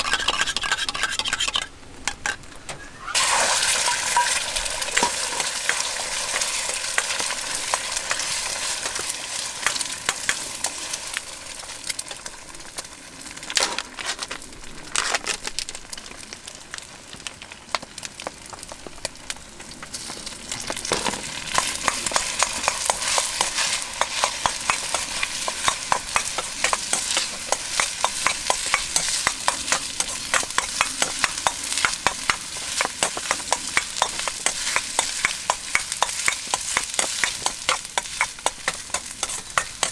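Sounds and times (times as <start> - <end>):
spatula scraping and knocking wok: 0.0 - 11.8, 20.6 - 39.9
rice sizzling in a wok: 3.0 - 39.9.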